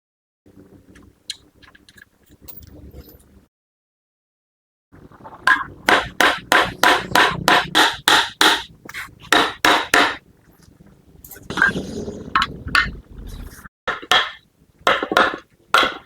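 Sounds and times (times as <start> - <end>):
hammer striking metal: 5.9 - 8.7, 9.3 - 10.2.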